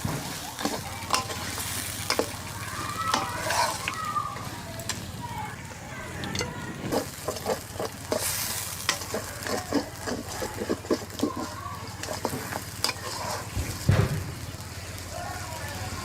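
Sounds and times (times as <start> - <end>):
spatula scraping and knocking a pan: 0.0 - 4.0, 6.3 - 14.2
meat sizzling in oil: 0.0 - 5.6, 6.2 - 16.0.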